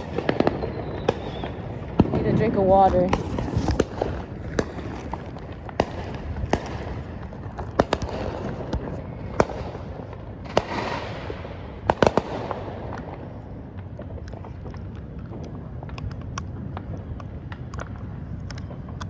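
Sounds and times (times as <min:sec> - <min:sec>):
firework hissing: 0:00.0 - 0:14.0
distant fireworks rumble: 0:00.0 - 0:19.0
firework bangs and cracks: 0:00.0 - 0:19.0.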